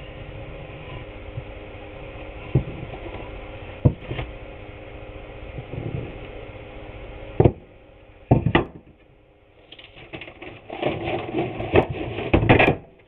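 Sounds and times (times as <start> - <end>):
wooden boards knocking: 7.4 - 7.7, 8.3 - 9.0
boards scraping and shuffling: 9.6 - 13.0.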